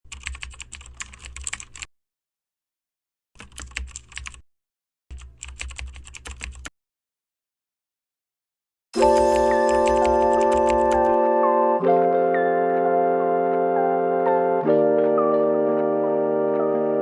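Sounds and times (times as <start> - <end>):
computer keyboard typing: 0.1 - 1.9, 3.4 - 4.4, 5.1 - 6.7, 9.0 - 11.2.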